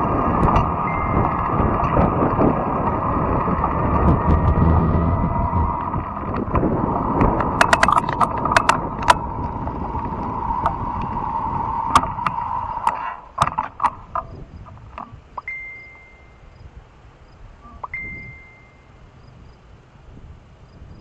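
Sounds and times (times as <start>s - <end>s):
sharp clicks and rattles: 0.0s - 15.5s
electric bike whine: 0.0s - 16.8s
rolling and wind noise: 0.0s - 21.0s.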